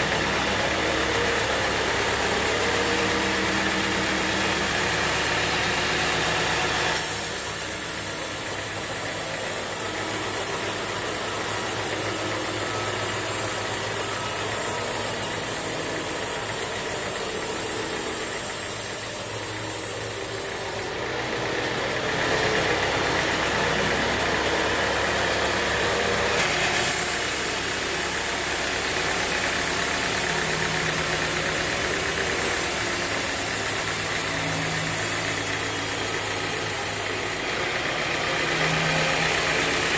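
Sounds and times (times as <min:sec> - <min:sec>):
sawmill machinery drone and hiss: 0:00.0 - 0:39.9.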